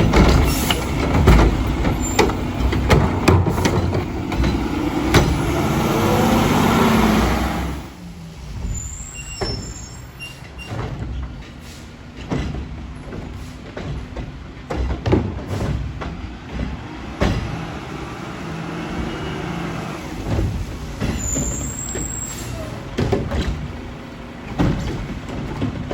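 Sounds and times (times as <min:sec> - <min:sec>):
knocks and clatter: 0:00.0 - 0:06.6, 0:10.4 - 0:19.4, 0:20.1 - 0:25.9
garbage truck engine revving: 0:00.0 - 0:10.2, 0:15.5 - 0:25.9
short squeaks from lift arm: 0:08.7 - 0:10.9, 0:21.0 - 0:22.8.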